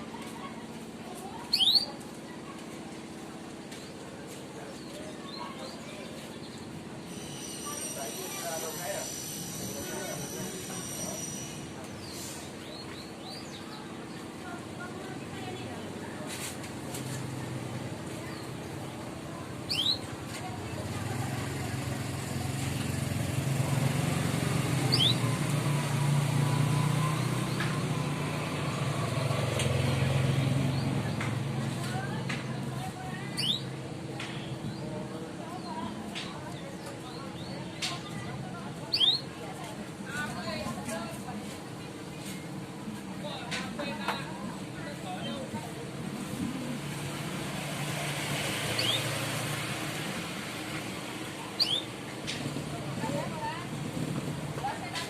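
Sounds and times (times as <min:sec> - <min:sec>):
canary chirp: 0:01.4 - 0:02.0, 0:19.6 - 0:20.1, 0:23.4 - 0:27.8, 0:33.3 - 0:34.9, 0:38.9 - 0:39.3, 0:48.5 - 0:49.6, 0:51.5 - 0:52.0
bird chirps: 0:01.5 - 0:02.0, 0:19.7 - 0:20.1, 0:24.9 - 0:25.3, 0:33.4 - 0:33.7, 0:38.9 - 0:39.3, 0:48.7 - 0:49.2, 0:51.6 - 0:52.0.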